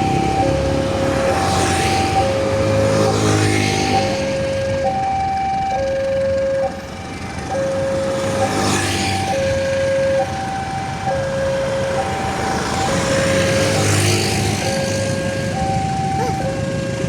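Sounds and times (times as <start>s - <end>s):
road and engine noise: 0.0s - 17.0s.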